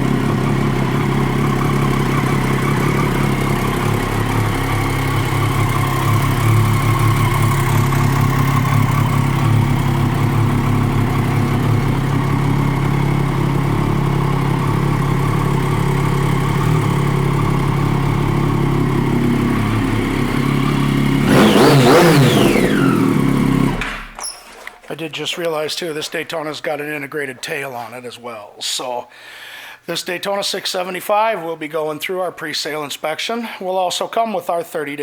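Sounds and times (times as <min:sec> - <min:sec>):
motorcycle engine idling and revving: 0:00.0 - 0:24.2.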